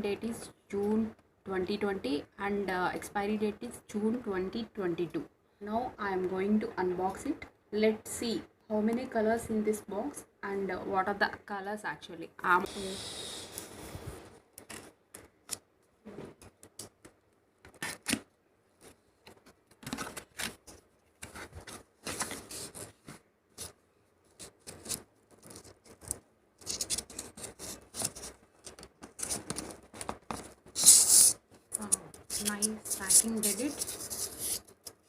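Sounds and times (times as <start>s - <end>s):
loud packaging rustle: 17.7s - 35.0s
packaging scrapes and clicks: 18.8s - 35.0s.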